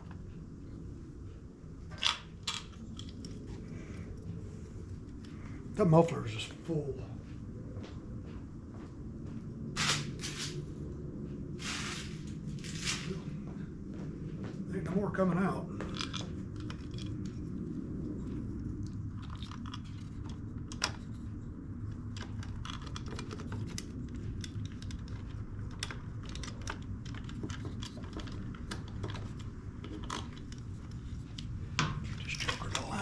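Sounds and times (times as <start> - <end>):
steady low hum: 0.0 - 33.0
small parts and tools clicking: 1.9 - 3.4, 22.1 - 31.5.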